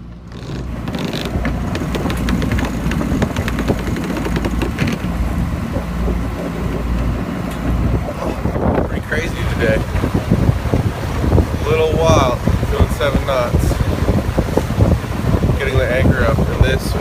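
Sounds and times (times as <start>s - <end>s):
water on boat hull: 0.0s - 17.0s
wind rumble: 0.0s - 17.0s
clicks and knocks: 0.3s - 5.1s.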